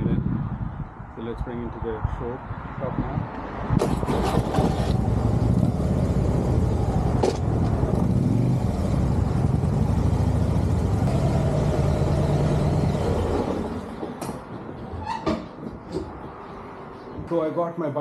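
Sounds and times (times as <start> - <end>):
motorcycle engine running: 4.1 - 13.8.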